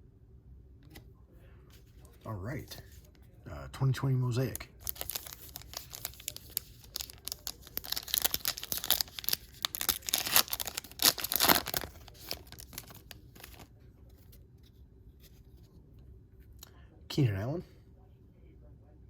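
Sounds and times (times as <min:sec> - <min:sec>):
wrapper crackling and crinkling: 0:04.5 - 0:13.7
card pack wrapper tearing: 0:04.6 - 0:13.7.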